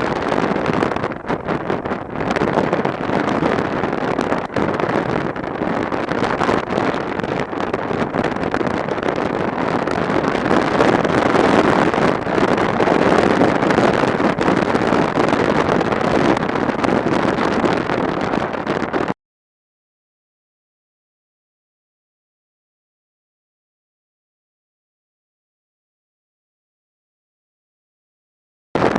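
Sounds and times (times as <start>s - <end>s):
road noise: 0.0s - 19.1s
wind rushing over microphone: 0.0s - 19.2s.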